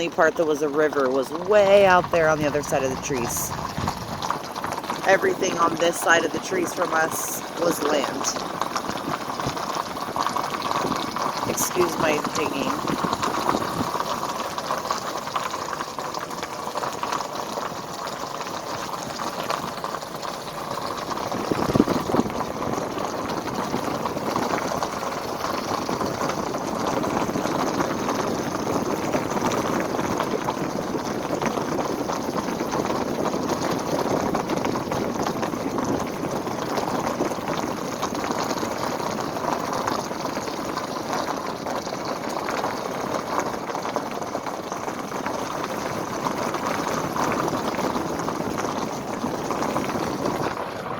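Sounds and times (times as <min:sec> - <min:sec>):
river water rushing: 0:00.8 - 0:09.7.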